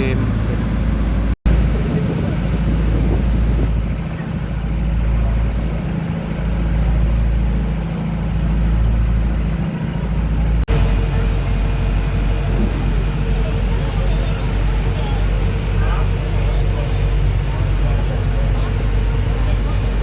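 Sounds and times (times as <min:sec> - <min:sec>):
engine drone with higher hum: 0:00.0 - 0:20.0
ferry engine droning: 0:00.0 - 0:20.0.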